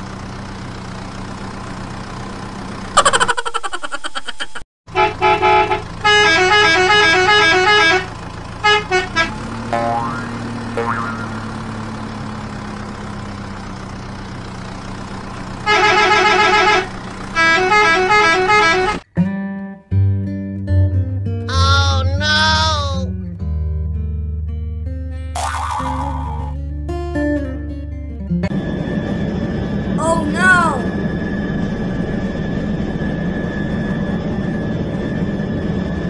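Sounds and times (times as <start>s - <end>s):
musical vehicle horn tune: 4.9s - 10.2s, 15.6s - 19.0s
low engine drone: 5.0s - 19.0s, 28.0s - 36.0s.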